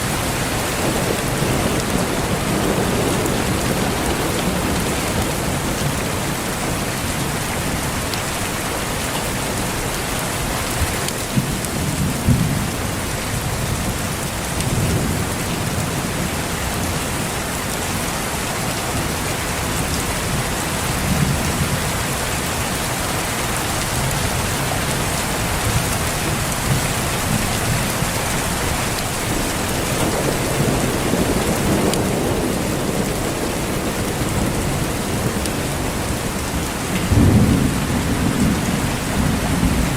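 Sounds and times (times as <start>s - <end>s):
heavy rain: 0.0s - 39.9s
thunder rolling: 0.1s - 6.8s, 24.2s - 39.9s.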